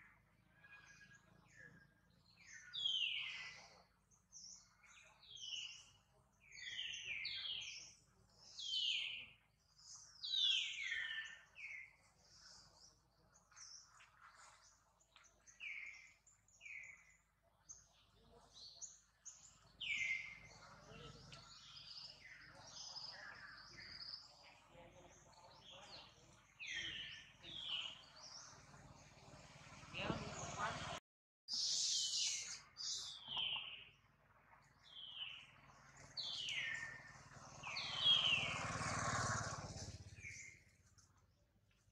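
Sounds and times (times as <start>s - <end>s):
wild birds chirping: 0.0s - 41.9s.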